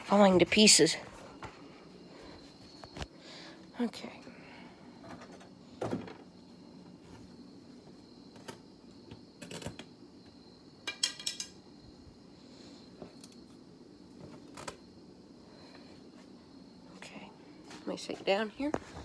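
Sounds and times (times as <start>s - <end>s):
metal tools clinking: 10.9s - 11.6s.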